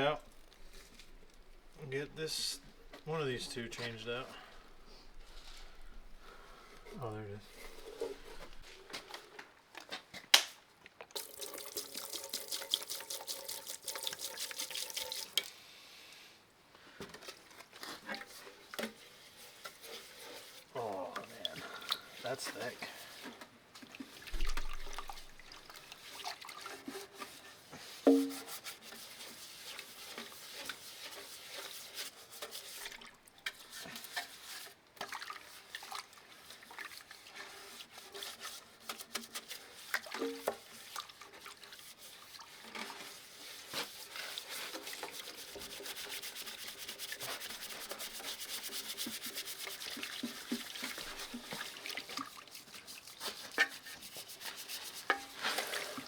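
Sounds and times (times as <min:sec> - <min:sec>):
scraping sludge from metal pan: 0:00.3 - 0:09.1, 0:17.2 - 0:56.0.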